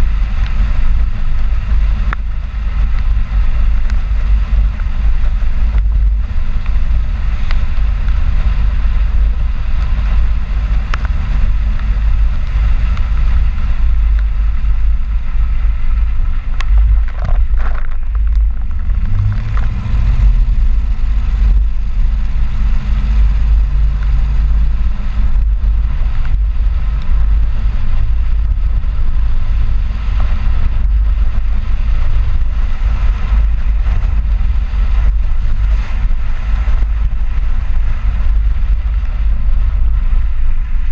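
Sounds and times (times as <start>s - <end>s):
road and wind rumble: 0.0s - 40.9s
engine note rising: 16.5s - 27.8s.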